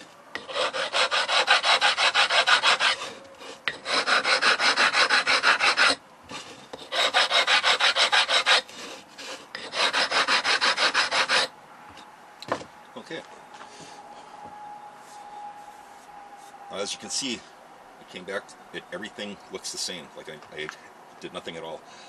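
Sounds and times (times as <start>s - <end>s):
file rasping on stone tile: 0.0s - 11.5s.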